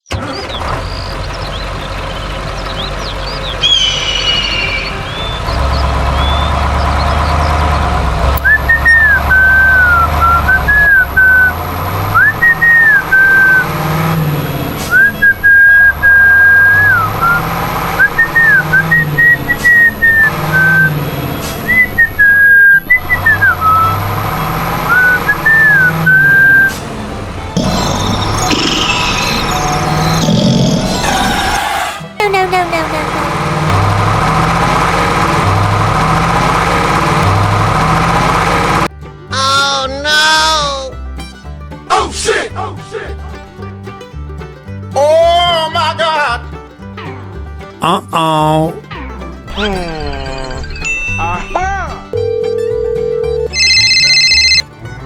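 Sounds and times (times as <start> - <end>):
whistled tune over bass line: 0.2 - 41.6, 49.0 - 55.0
chirps: 0.3 - 11.5, 27.6 - 31.6
low drone: 3.5 - 8.6.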